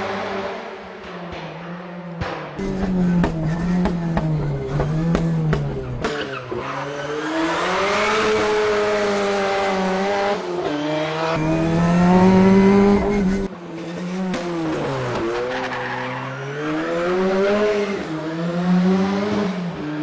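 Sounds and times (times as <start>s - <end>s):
race car engine through gear changes: 2.6s - 6.6s, 11.3s - 13.5s.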